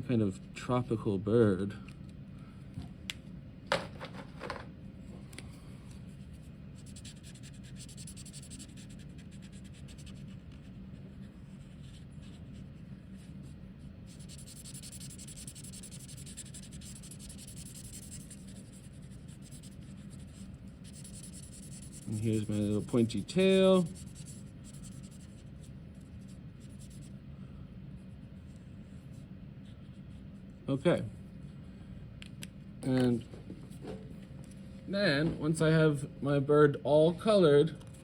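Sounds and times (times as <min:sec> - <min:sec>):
steady low hum: 0:00.0 - 0:38.0
marker scratching on paper: 0:06.1 - 0:27.2, 0:29.1 - 0:30.4.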